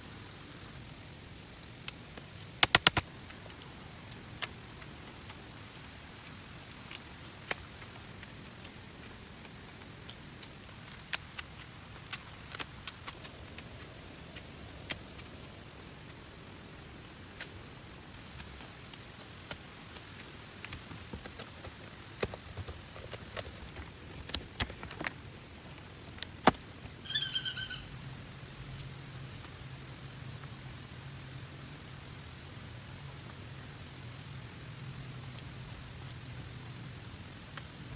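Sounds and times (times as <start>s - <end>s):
sharp ticks and taps: 1.9s - 29.5s
rapid chirping animal call: 26.9s - 28.2s.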